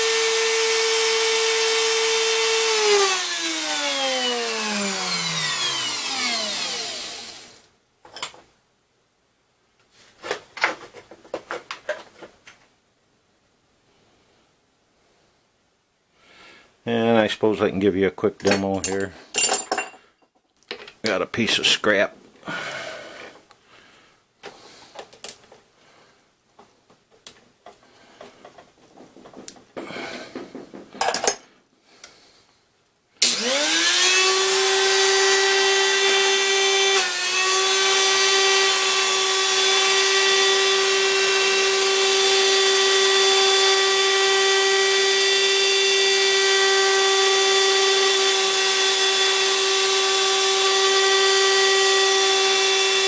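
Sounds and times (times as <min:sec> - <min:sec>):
grinder whining: 0:00.0 - 0:07.7, 0:33.2 - 0:53.0.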